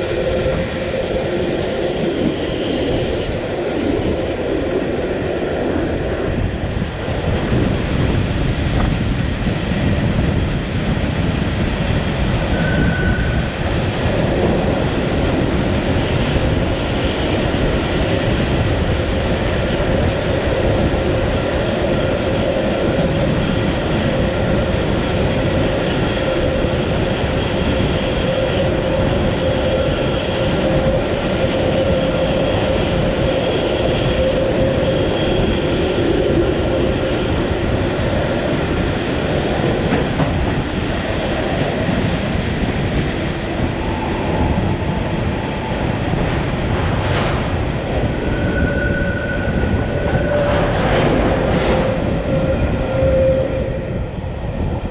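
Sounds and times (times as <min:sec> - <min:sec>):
high-pitched wheel squeal: 0:00.0 - 0:05.3, 0:12.4 - 0:13.6, 0:48.2 - 0:50.8, 0:51.4 - 0:54.9
train rumbling: 0:00.0 - 0:54.9.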